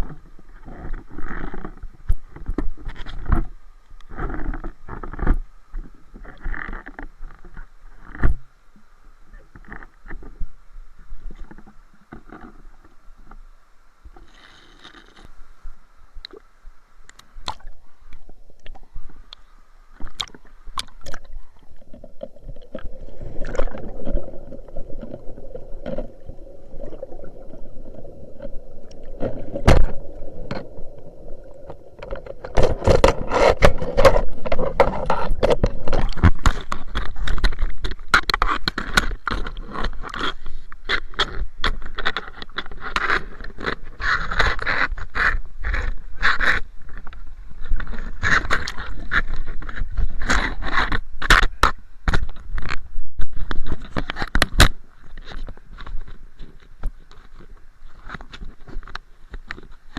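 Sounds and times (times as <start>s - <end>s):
rushing water: 15.4s - 38.2s
water splashing and sloshing: 17.1s - 59.9s.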